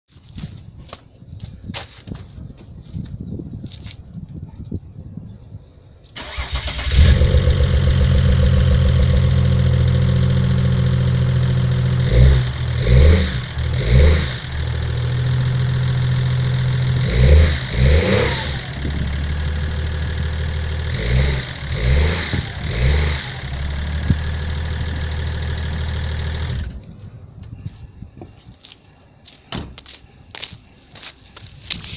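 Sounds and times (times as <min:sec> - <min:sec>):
engine revving: 0:06.2 - 0:26.8
diesel engine cranking and starting: 0:06.2 - 0:26.9.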